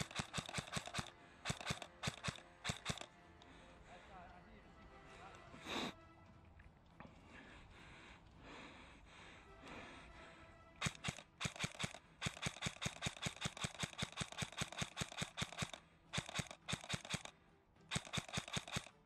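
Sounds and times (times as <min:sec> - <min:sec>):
airsoft gun rapid shots: 0:00.0 - 0:03.6, 0:10.8 - 0:19.0.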